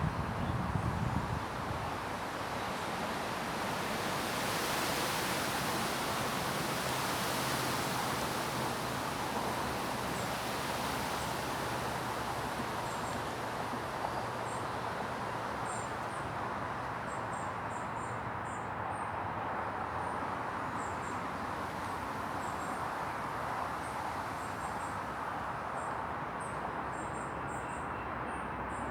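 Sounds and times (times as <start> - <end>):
wind and rain through trees: 0.0 - 27.8.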